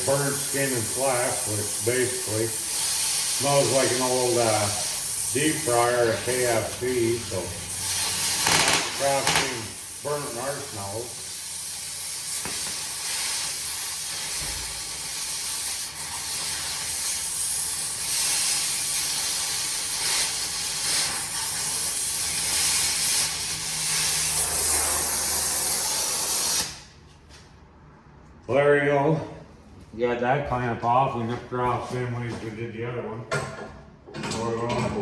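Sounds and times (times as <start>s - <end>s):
cutting torch flame hissing: 0.0s - 26.9s.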